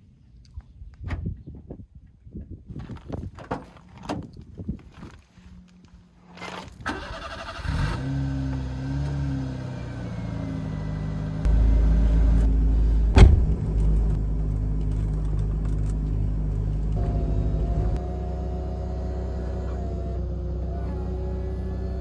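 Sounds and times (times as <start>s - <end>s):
car engine and exhaust: 6.9s - 22.0s
sharp knock: 13.1s - 13.8s.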